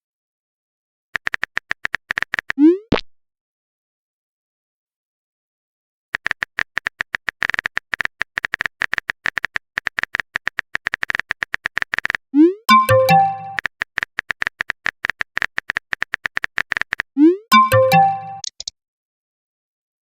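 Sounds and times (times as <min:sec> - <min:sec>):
phone keyboard typing clicks: 0:01.2 - 0:02.6, 0:06.2 - 0:18.7
short electronic chime: 0:12.7 - 0:13.6, 0:17.5 - 0:18.4.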